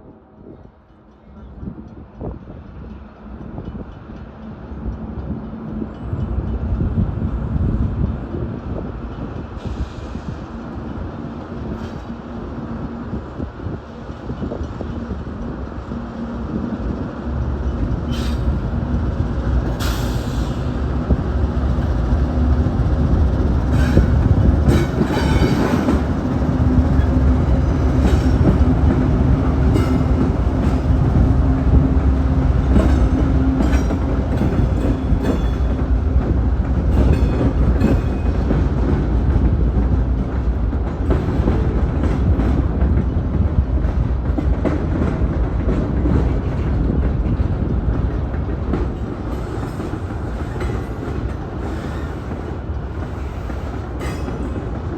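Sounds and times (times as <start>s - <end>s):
freight train rumbling past: 0.0s - 54.9s
wheels squealing on rails: 17.6s - 18.8s, 22.7s - 31.8s, 48.9s - 54.9s.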